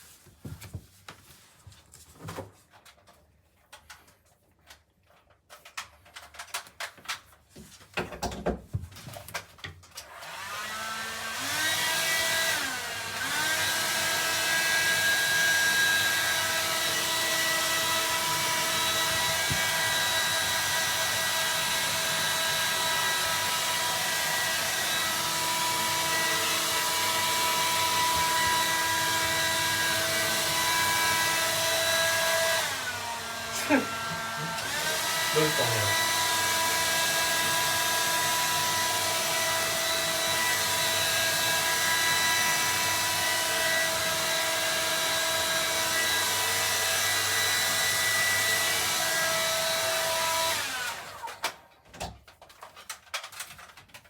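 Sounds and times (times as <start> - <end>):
faint rustles and taps: 0.0 - 9.8
hair dryer motor whine: 10.0 - 51.7.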